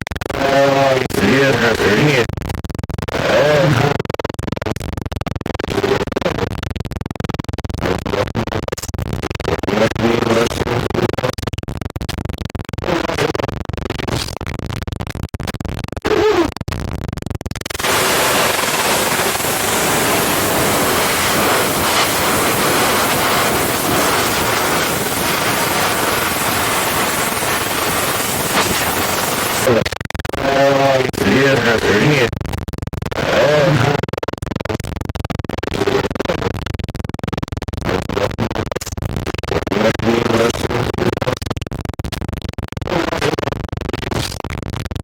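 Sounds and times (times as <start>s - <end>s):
tv static crackling: 17.7s - 29.8s
voice-like fragments: 17.8s - 29.8s.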